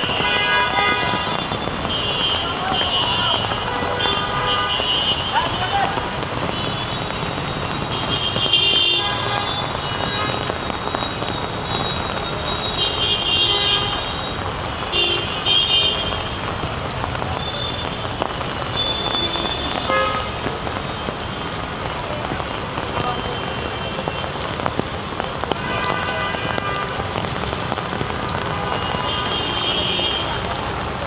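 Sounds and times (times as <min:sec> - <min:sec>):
vehicle horn toots: 0:00.0 - 0:07.0, 0:07.8 - 0:11.1, 0:11.8 - 0:16.4, 0:18.8 - 0:20.5, 0:25.6 - 0:27.5, 0:28.3 - 0:30.6
heavy rain on flooded street: 0:00.0 - 0:31.0.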